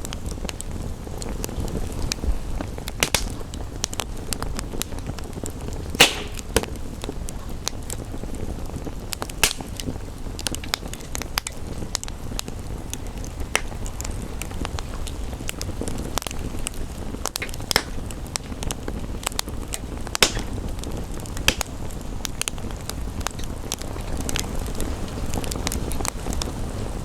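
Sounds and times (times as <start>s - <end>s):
rain rumble: 0.0s - 27.0s
wood fire crackling and popping: 0.0s - 27.0s
loud pop: 3.0s - 3.4s, 6.0s - 6.8s, 9.4s - 9.9s, 20.2s - 20.7s, 21.5s - 21.8s.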